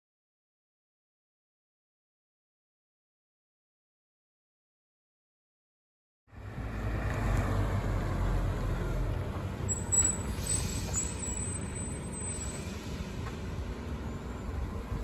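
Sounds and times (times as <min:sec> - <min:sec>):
truck engine rumbling: 0:06.3 - 0:15.0.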